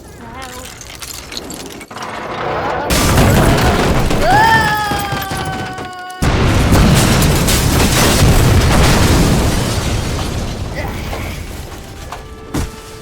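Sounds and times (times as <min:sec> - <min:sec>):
loud explosion boom: 0:06.2 - 0:11.6.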